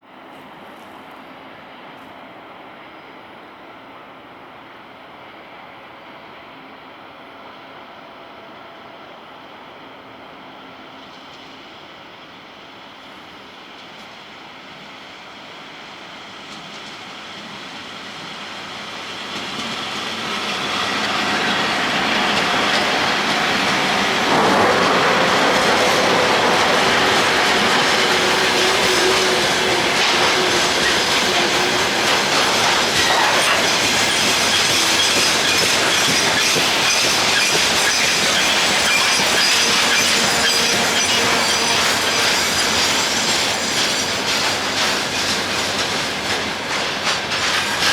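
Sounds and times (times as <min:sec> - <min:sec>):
electric locomotive hauling freight train: 0:00.1 - 0:47.9
wagon wheels clattering on rails: 0:21.9 - 0:47.9.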